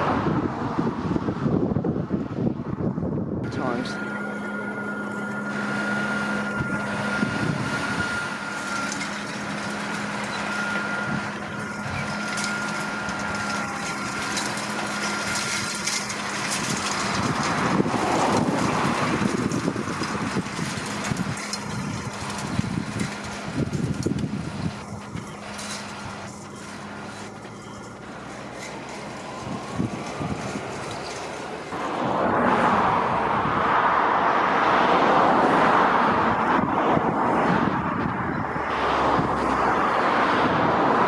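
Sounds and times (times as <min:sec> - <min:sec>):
tractor engine running: 0:00.0 - 0:41.0
thin high whine: 0:03.4 - 0:32.5.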